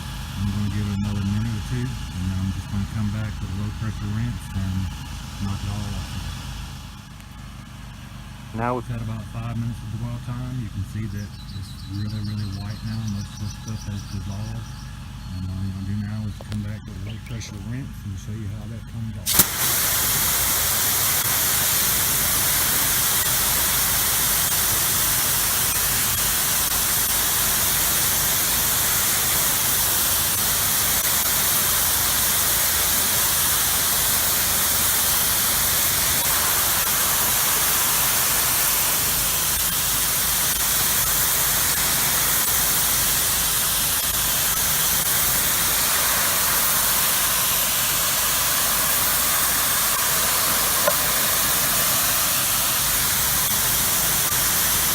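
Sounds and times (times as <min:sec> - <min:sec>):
low steady hum: 0:00.0 - 0:32.1
water spraying on siding: 0:19.2 - 0:54.9.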